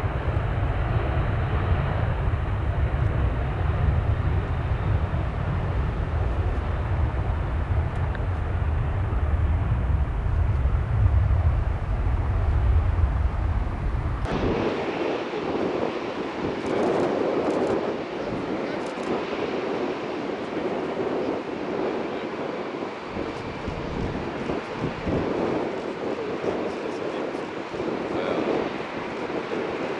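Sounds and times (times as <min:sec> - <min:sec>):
jet engines rumbling: 0:00.0 - 0:29.9
wind buffeting microphone: 0:00.0 - 0:29.9.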